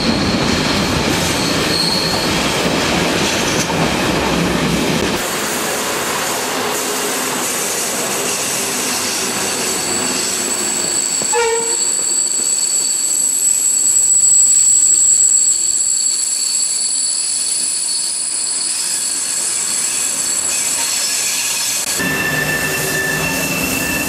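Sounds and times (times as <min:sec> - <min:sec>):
train rolling rumble: 0:00.0 - 0:24.0
high-pitched wheel squeal: 0:01.4 - 0:02.4, 0:09.6 - 0:24.0
train horn toot: 0:11.2 - 0:12.2, 0:21.9 - 0:24.0.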